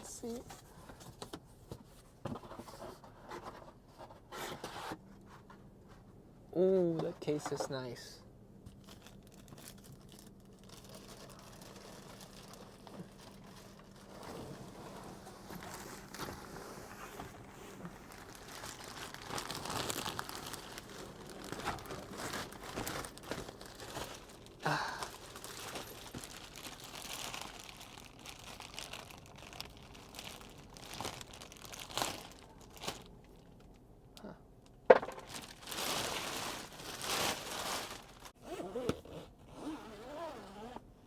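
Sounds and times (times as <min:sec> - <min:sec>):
packaging crinkling and tearing: 0:08.7 - 0:16.6, 0:17.2 - 0:33.1, 0:35.1 - 0:38.4.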